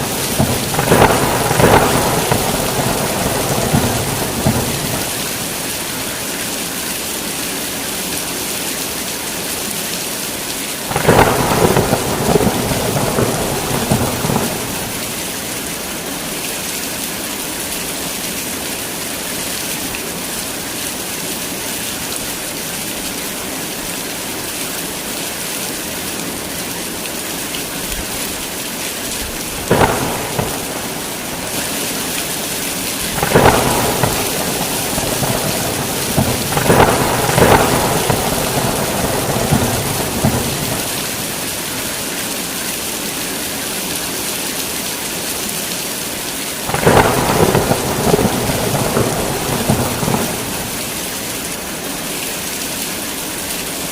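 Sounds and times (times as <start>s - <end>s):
thunder: 0.0s - 5.7s, 10.9s - 15.2s, 29.6s - 41.6s, 46.7s - 51.0s
heavy rain falling: 0.0s - 53.9s.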